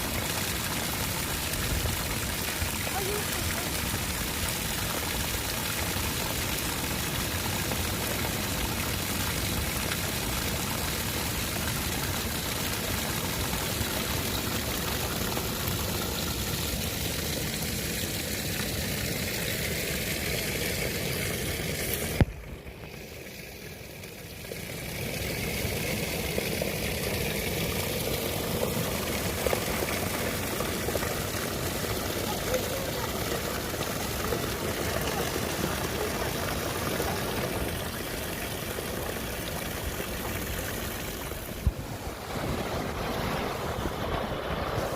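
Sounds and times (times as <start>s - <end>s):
seawater washing on shore: 24.6s - 44.9s.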